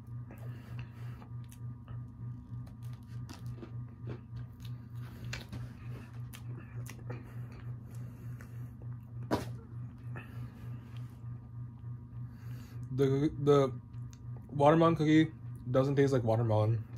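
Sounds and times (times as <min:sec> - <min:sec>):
person chewing crisp cookie: 0:00.0 - 0:12.2
pulsing low hum: 0:00.0 - 0:16.9.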